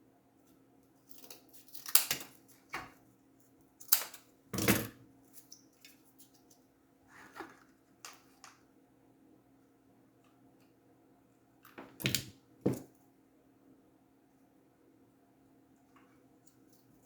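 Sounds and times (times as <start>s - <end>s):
faint steady hum: 0.0s - 17.0s
handling knocks and scrapes: 12.6s - 13.0s.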